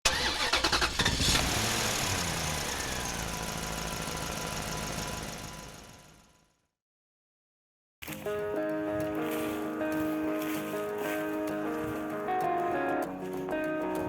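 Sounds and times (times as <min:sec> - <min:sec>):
motor engine humming: 0:00.4 - 0:06.3.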